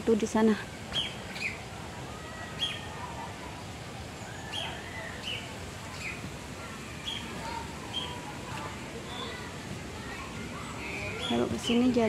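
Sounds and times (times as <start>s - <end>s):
birds chirping: 0.0s - 1.7s, 2.4s - 8.4s, 9.0s - 12.0s
lower whistled bird notes: 2.6s - 2.9s, 7.9s - 8.2s.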